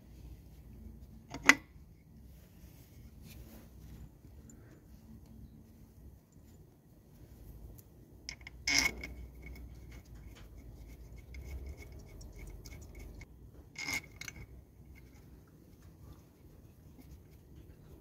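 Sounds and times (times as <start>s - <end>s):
clicks and scrapes of small parts: 1.2s - 1.8s, 7.7s - 16.0s.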